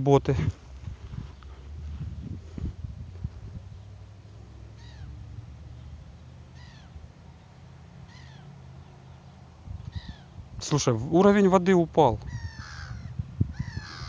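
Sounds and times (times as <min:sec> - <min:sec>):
low steady rumble: 0:00.0 - 0:14.0
bird calling: 0:03.7 - 0:10.4, 0:12.2 - 0:14.0.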